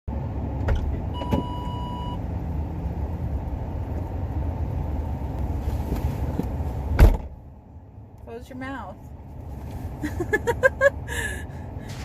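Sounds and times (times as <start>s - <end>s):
car cabin rumble: 0.1s - 10.9s
steady beep: 1.2s - 2.2s.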